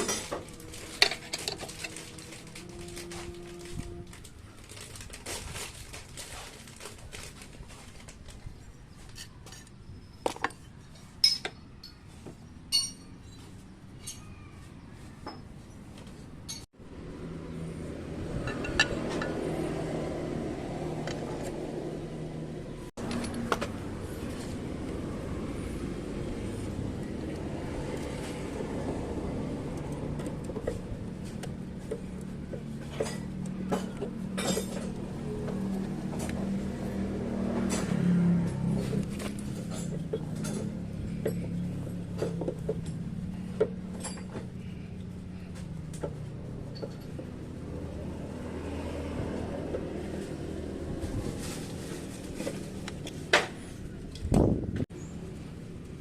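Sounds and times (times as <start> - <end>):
metal tools clinking: 0.0 - 4.2, 9.0 - 13.4, 18.3 - 19.6, 23.0 - 23.7, 32.8 - 35.0, 37.7 - 46.0, 46.6 - 47.2.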